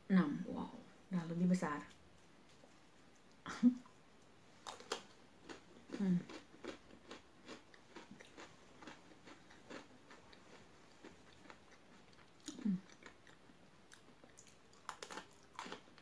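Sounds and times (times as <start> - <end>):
chewing crunchy biscuit sticks: 4.6 - 16.0.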